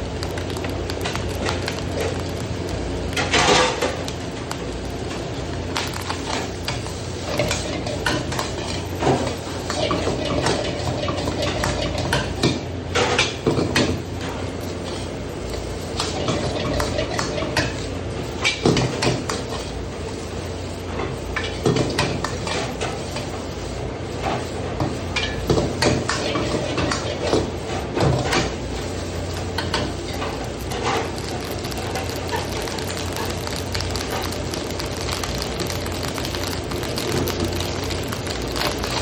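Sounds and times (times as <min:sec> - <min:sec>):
spatula scraping cooking pan: 0:06.1 - 0:31.2.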